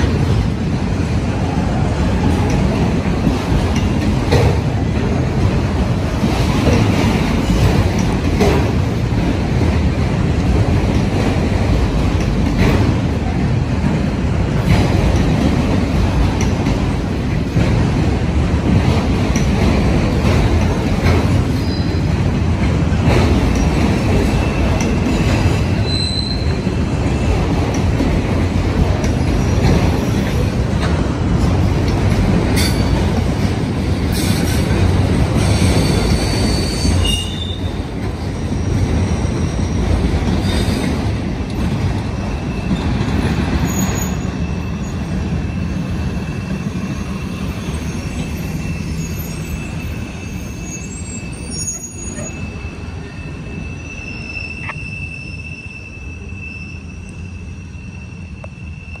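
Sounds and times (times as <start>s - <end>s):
freight train wheels rumbling: 0.0s - 59.0s
high wheel squeals: 25.7s - 26.6s, 35.4s - 41.0s, 42.2s - 59.0s.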